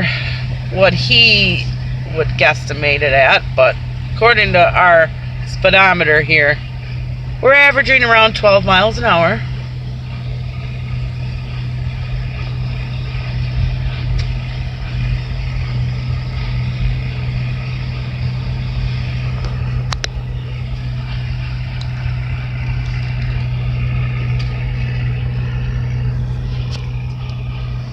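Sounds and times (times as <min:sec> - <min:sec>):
vehicle engine drone and road noise: 0:00.0 - 0:27.9.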